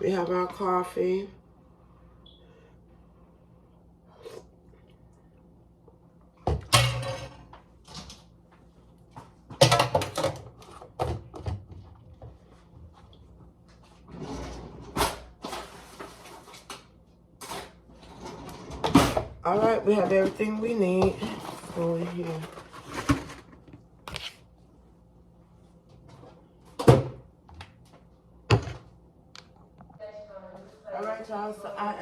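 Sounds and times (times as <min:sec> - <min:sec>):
kitchen items clattering: 0:06.5 - 0:08.3, 0:09.5 - 0:12.0, 0:17.4 - 0:23.8.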